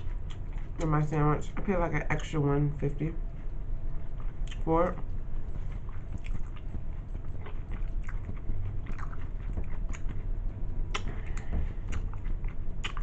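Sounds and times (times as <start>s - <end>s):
person chewing sandwich: 0.0s - 0.8s, 3.3s - 13.0s
low hum: 0.0s - 13.0s
wet clicky mouth noises: 4.2s - 5.0s, 10.9s - 13.0s.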